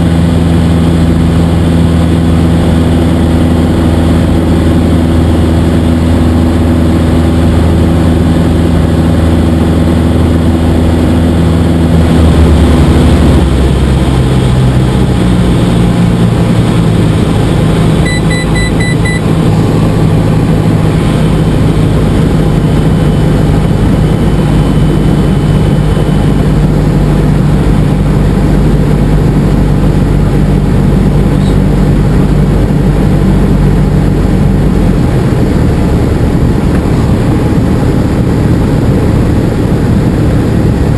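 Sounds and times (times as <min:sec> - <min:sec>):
aircraft engine and propeller: 0:00.0 - 0:40.9
rapid beeps: 0:18.0 - 0:19.2.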